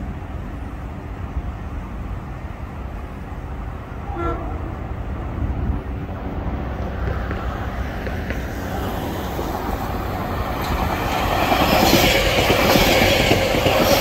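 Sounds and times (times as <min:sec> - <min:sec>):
electric train rumbling: 0:00.0 - 0:14.0
train horn toot: 0:04.0 - 0:04.9.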